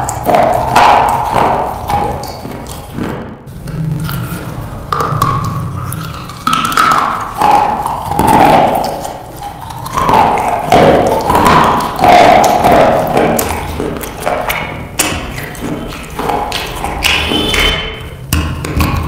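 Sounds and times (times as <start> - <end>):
crunching and chewing: 0.0 - 19.0.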